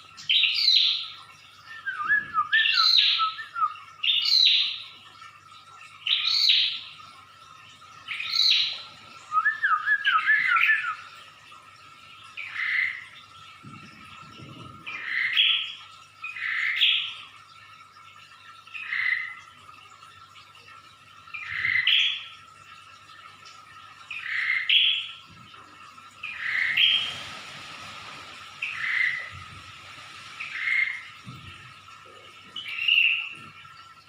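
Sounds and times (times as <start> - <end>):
bird singing call phrases: 0.2 - 4.8, 8.1 - 11.1, 32.6 - 33.4.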